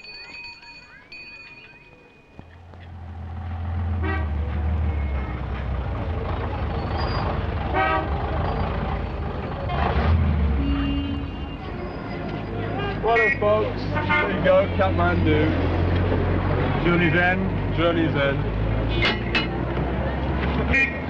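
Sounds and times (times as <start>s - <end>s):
vehicle engine rumbling: 2.3s - 21.0s
horn toots: 3.8s - 5.8s, 6.9s - 8.4s, 9.7s - 14.8s, 20.6s - 21.0s.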